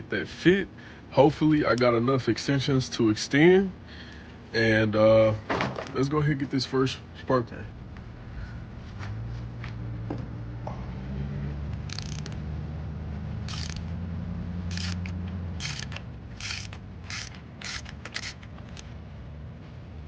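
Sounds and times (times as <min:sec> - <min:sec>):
low hum: 0:07.0 - 0:20.0
ratchet wrench clicking: 0:11.8 - 0:12.4, 0:13.5 - 0:13.9, 0:14.7 - 0:18.9.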